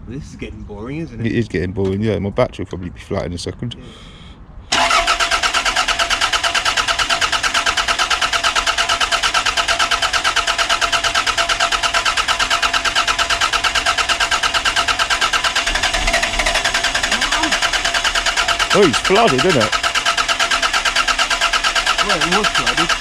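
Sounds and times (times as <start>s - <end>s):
engine cranking by starter motor: 4.7s - 23.0s.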